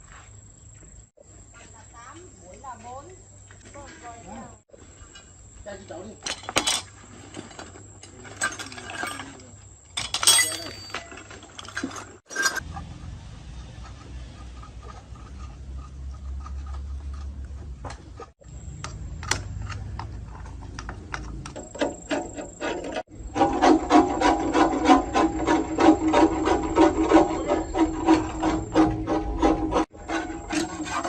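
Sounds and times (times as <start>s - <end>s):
file scraping metal: 13.7s - 18.3s, 19.6s - 31.0s.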